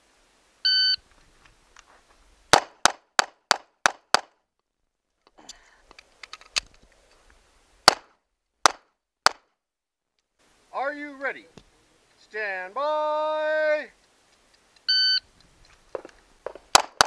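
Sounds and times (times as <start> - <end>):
pistol shots: 2.5 - 4.3, 7.9 - 9.4, 16.7 - 17.0
shot timer beep: 14.9 - 15.2.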